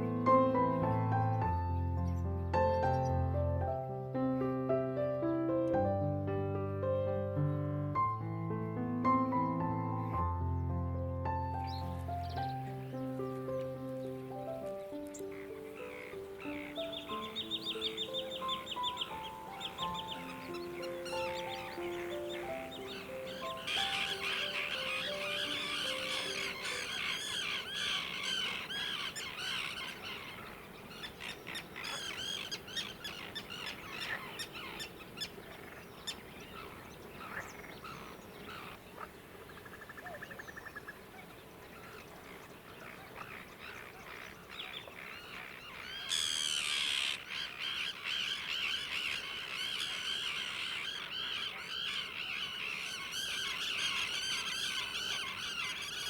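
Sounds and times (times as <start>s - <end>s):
bird trill: 11.6s - 56.0s
birds singing and calling: 11.6s - 56.0s.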